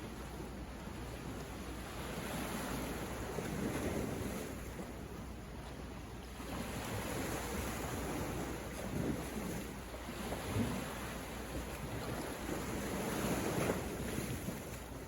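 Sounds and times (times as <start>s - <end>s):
sea waves washing onto shore: 0.0s - 15.0s
wind rumble on microphone: 0.0s - 15.0s.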